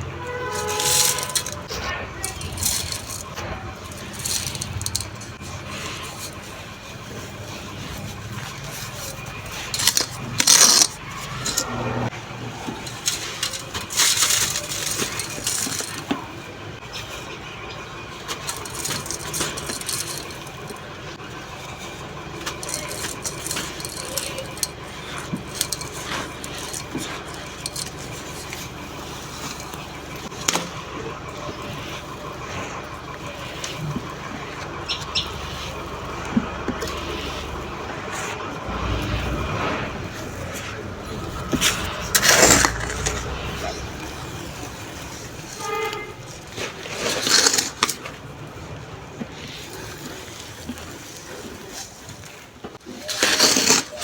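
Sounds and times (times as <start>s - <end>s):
sand crumbling and crunching: 35.3s - 45.4s.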